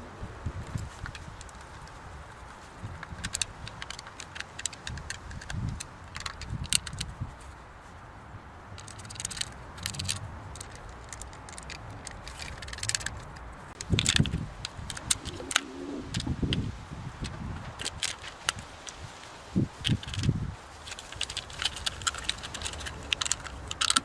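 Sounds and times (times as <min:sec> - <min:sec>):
small hard objects rattling: 0:08.8 - 0:16.6, 0:17.2 - 0:24.0.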